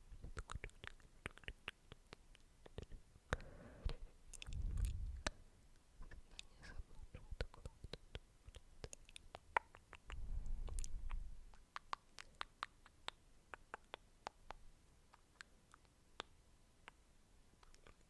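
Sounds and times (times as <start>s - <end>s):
wet mouth clicks and smacks: 0.2s - 3.0s, 4.3s - 5.4s, 7.4s - 17.0s, 17.6s - 18.0s
low muffled rumble: 4.5s - 5.3s.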